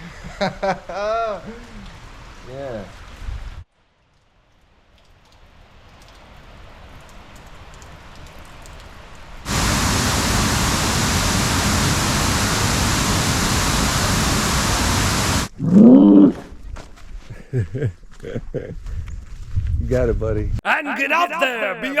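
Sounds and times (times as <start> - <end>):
waterfall rushing: 9.5 - 15.5.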